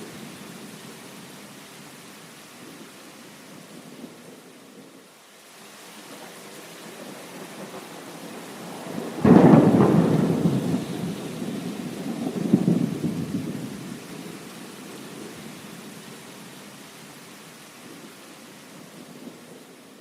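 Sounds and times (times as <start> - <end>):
steady rain: 0.0 - 20.0
thunder rumbling: 6.9 - 14.4.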